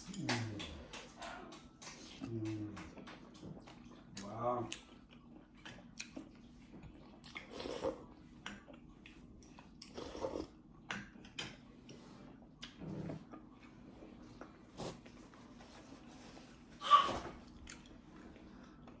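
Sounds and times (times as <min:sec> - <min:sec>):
chewing and biting food: 0:00.4 - 0:11.4.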